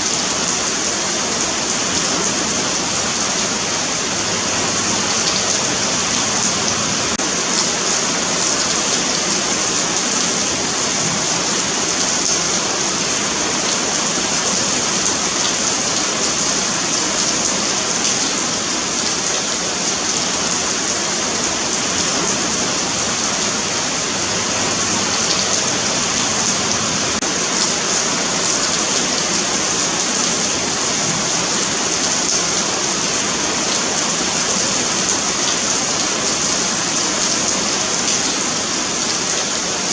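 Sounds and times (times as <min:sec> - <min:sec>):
rain on pavement: 0:00.0 - 0:39.9.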